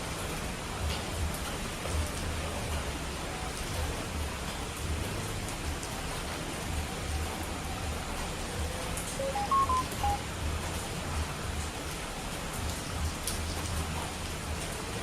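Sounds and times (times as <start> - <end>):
short beeping tones: 9.2 - 10.2.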